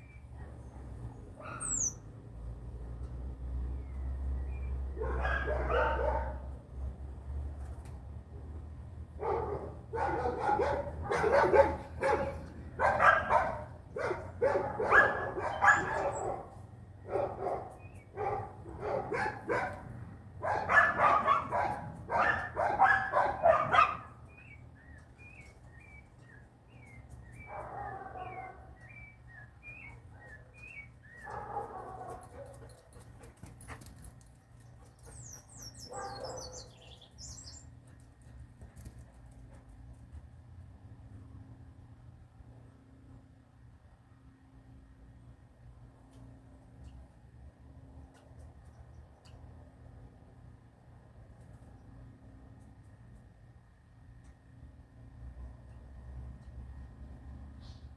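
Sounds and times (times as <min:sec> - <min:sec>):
small birds chirping: 0:00.0 - 0:02.0, 0:34.6 - 0:38.0
dog barking: 0:01.4 - 0:01.8, 0:05.0 - 0:06.5, 0:09.2 - 0:24.2, 0:27.5 - 0:28.7, 0:31.2 - 0:32.6, 0:35.8 - 0:36.8.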